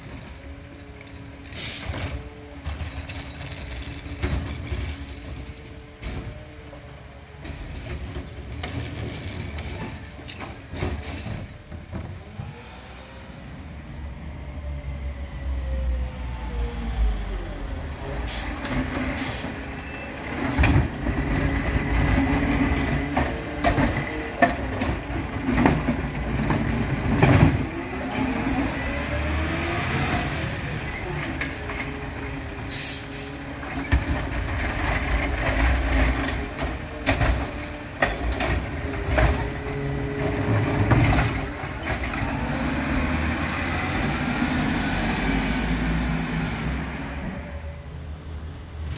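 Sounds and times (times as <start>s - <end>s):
air brakes hissing: 1.5s - 2.0s, 17.9s - 20.7s, 31.8s - 33.5s
cart banging and clattering: 7.4s - 12.2s, 18.6s - 29.5s, 30.6s - 43.9s
garbage truck engine revving: 16.4s - 47.7s.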